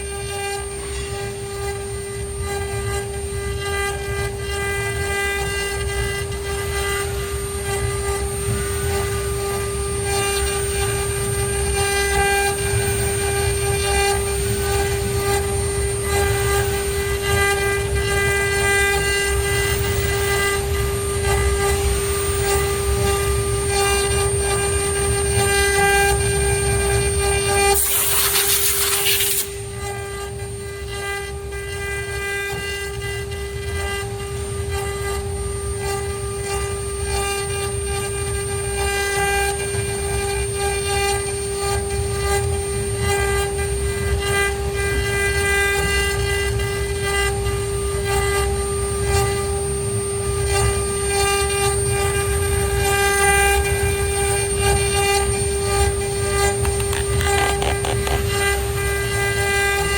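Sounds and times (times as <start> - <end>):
router spindle motor whine: 0.0 - 59.9
loud hiss: 27.8 - 29.6.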